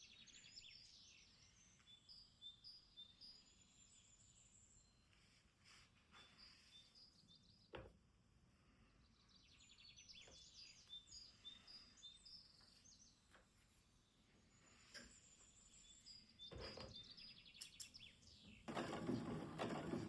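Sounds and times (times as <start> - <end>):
small birds chirping and trilling: 0.0 - 5.0, 8.7 - 20.0.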